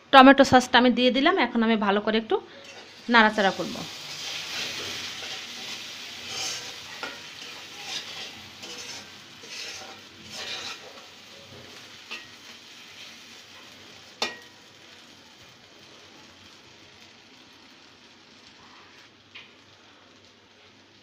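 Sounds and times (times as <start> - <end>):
spice paste sizzling in oil: 2.6 - 21.0
utensil stirring and scraping pot: 3.9 - 14.5.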